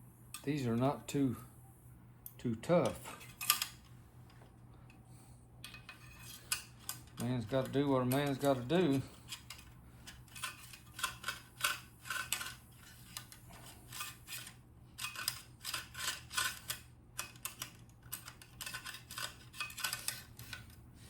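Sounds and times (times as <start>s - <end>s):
metal rods clicking and scraping: 2.8s - 3.9s, 5.6s - 20.8s.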